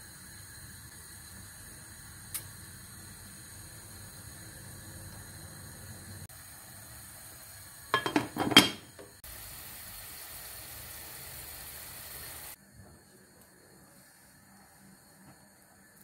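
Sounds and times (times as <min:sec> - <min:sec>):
steady hiss: 0:00.0 - 0:16.0
dishes and cutlery clinking: 0:08.0 - 0:09.0.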